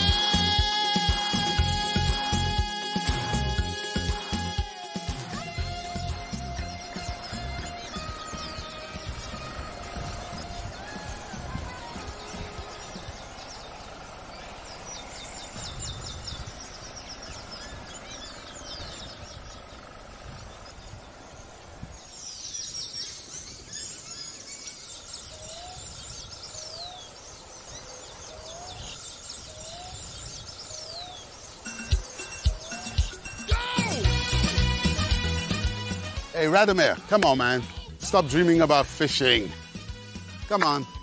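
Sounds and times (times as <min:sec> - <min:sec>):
small birds chirping and trilling: 0:00.0 - 0:34.6
bird rising whistle: 0:31.7 - 0:33.5.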